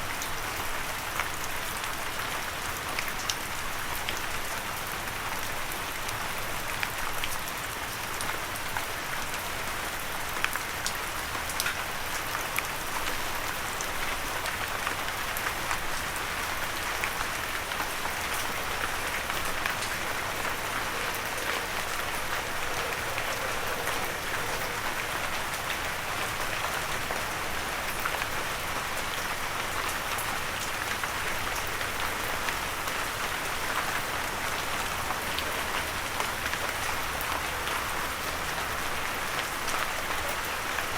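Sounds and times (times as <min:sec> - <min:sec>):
gentle rain falling: 0:00.0 - 0:40.9.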